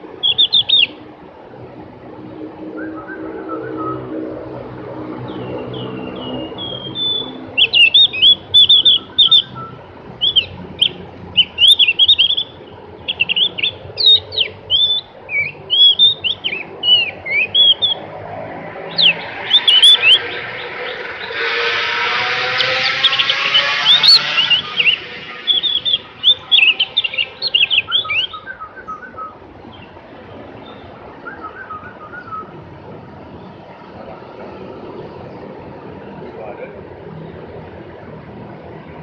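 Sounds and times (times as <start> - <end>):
bird singing whistled notes: 0.2 - 1.0, 2.7 - 4.2, 5.3 - 18.1, 18.7 - 21.6, 22.3 - 29.9, 30.6 - 32.6.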